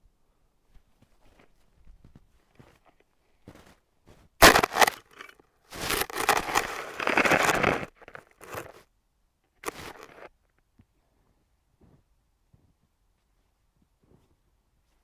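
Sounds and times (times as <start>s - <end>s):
footsteps crunching through dry brush: 3.5s - 8.8s.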